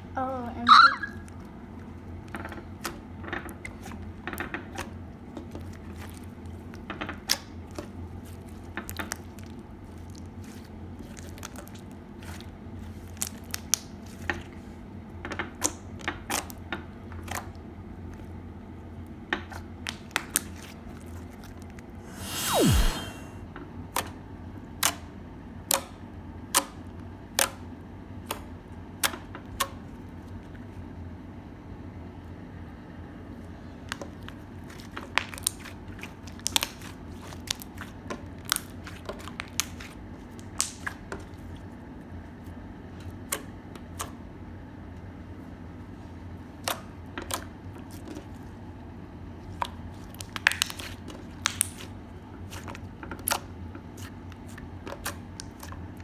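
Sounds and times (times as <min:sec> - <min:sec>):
crunchy slime clicking pops: 0:05.6 - 0:07.9, 0:35.2 - 0:41.0, 0:49.6 - 0:51.9
steady low hum: 0:22.0 - 0:23.4.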